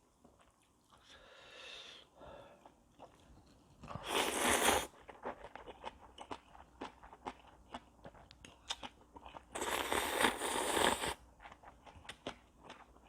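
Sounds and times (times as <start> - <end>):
slurping noodles: 3.9 - 5.0, 9.6 - 11.2.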